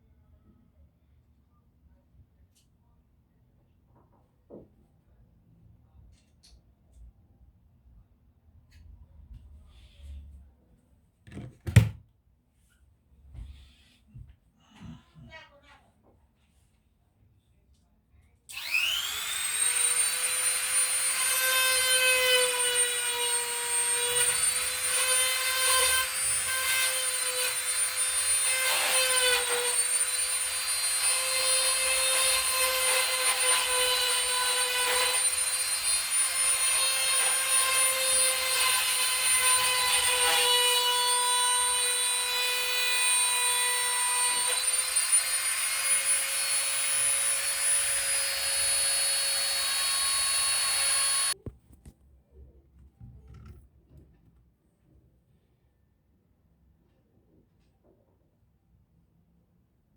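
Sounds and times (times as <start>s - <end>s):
small electric motor whining: 18.5s - 25.2s, 43.0s - 51.4s.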